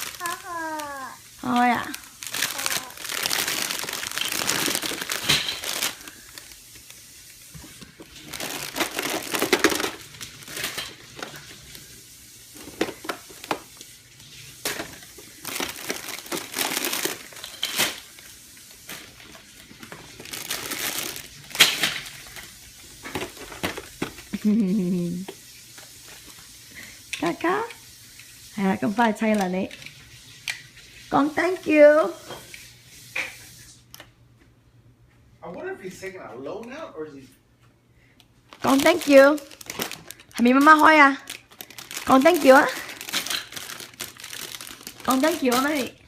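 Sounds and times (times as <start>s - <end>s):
gift packaging torn and crumpled: 0.0s - 6.6s, 8.1s - 11.7s, 15.2s - 18.2s, 18.8s - 22.4s, 38.5s - 46.0s.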